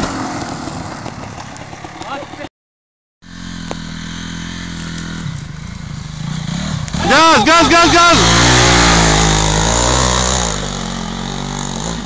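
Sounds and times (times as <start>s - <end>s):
dirt bike engine running: 3.2s - 12.0s.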